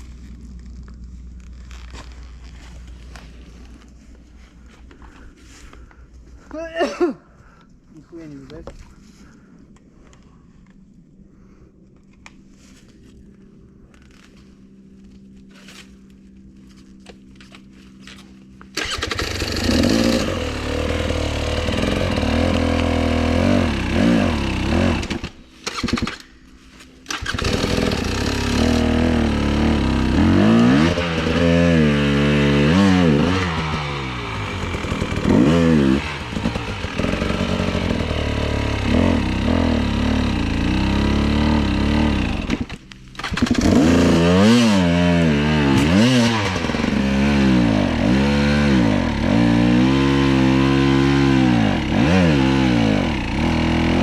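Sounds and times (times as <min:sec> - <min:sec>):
motorcycle engine revving: 0:18.7 - 0:26.2, 0:27.0 - 0:54.0.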